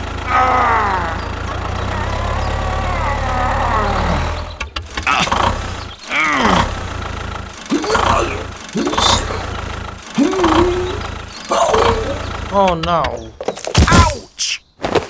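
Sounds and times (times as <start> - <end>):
small motor winding down: 0.0 - 12.6
voice-like cries and groans: 0.1 - 6.8, 7.7 - 9.6, 10.2 - 12.6.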